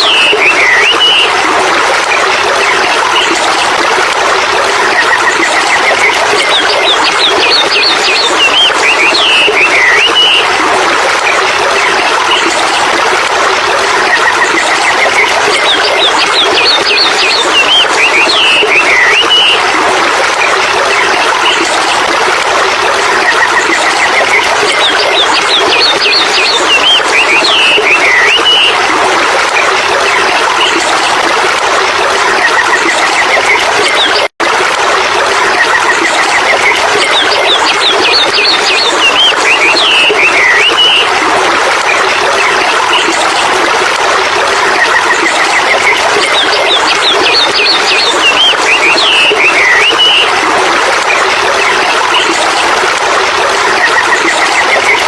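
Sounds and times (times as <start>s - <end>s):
birds chirping and trilling: 46.3s - 50.3s.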